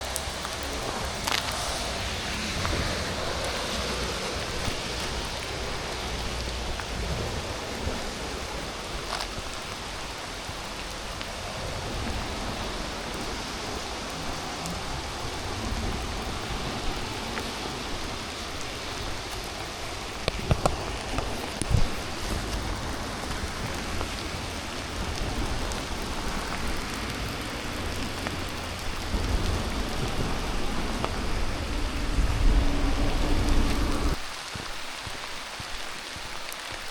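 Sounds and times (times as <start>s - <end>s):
rain falling: 0.0s - 36.9s.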